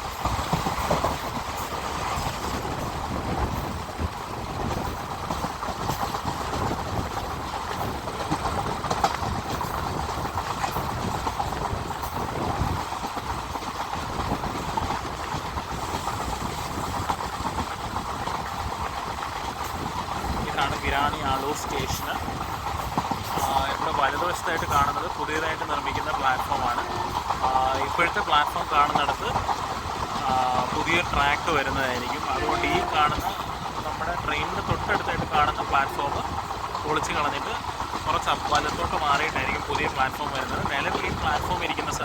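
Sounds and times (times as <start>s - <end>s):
train rumbling at speed: 0.0s - 42.0s
wheels clicking over rail joints: 0.0s - 42.0s.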